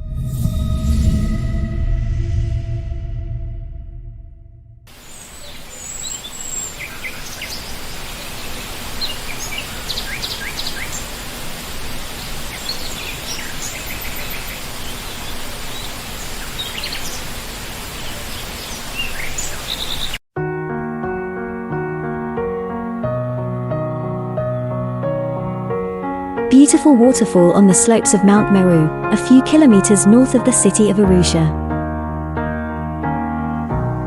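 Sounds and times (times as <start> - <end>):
waterfall rushing: 4.9 - 20.2
small birds chirping: 5.0 - 20.2.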